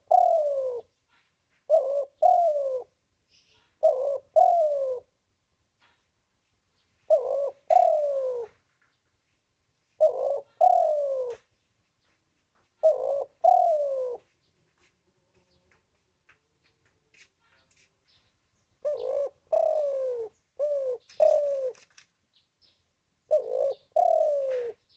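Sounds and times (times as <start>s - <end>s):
dove cooing: 0.0s - 5.2s, 7.1s - 8.7s, 10.0s - 11.5s, 12.8s - 14.4s, 18.8s - 22.0s, 23.3s - 24.9s.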